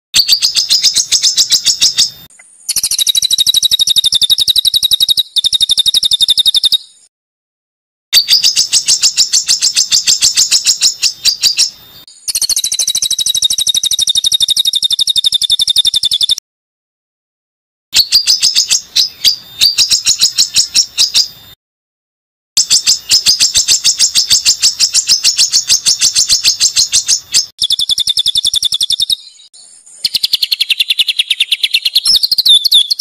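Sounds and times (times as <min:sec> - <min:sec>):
songbird harsh rapid trills: 0:00.2 - 0:07.0, 0:08.2 - 0:16.4, 0:22.6 - 0:33.0.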